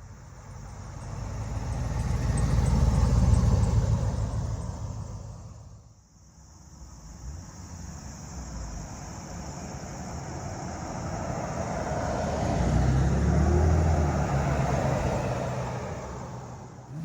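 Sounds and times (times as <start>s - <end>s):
car passing by: 0.9s - 5.6s, 11.0s - 17.0s.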